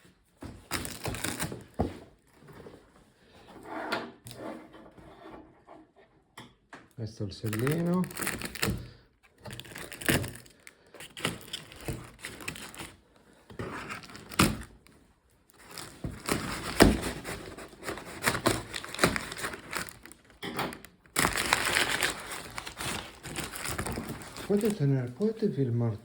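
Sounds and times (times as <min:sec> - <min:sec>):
packaging crinkling: 0:00.7 - 0:01.8, 0:07.4 - 0:14.9, 0:15.5 - 0:26.0.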